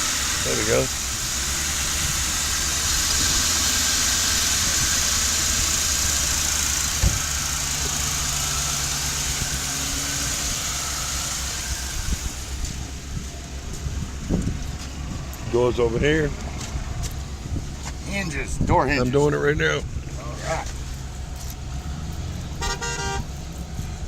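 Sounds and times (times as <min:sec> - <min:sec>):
car engine idling: 0:00.0 - 0:24.0
short knock: 0:07.0 - 0:07.3.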